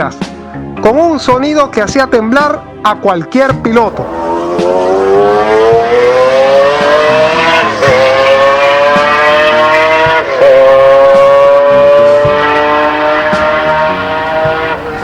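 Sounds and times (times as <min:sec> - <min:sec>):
racing engine accelerating: 0:03.9 - 0:15.0.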